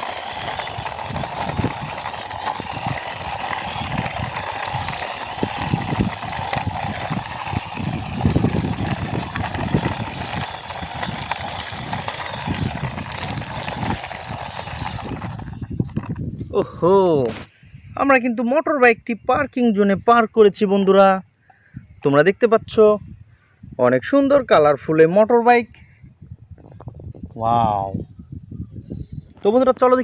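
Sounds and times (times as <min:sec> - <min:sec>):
toy wheels rolling on hard floor: 0:00.0 - 0:16.5.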